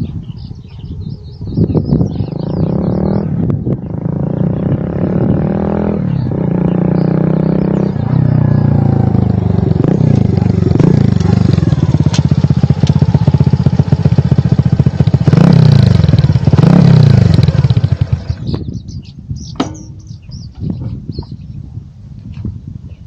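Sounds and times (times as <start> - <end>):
motorcycle engine revving: 1.6 - 19.0.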